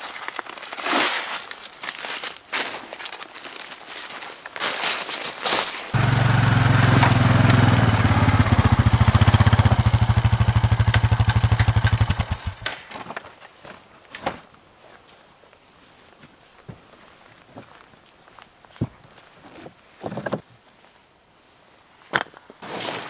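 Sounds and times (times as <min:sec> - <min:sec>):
atv engine running: 0:05.9 - 0:12.7.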